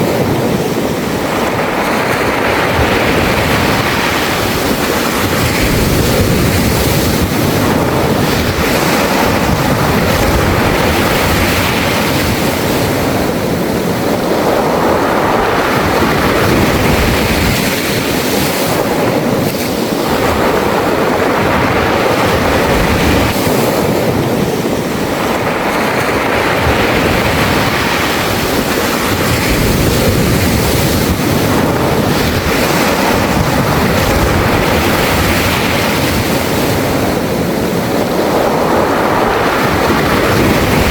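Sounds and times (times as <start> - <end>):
surf on pebble beach: 0.0 - 40.9.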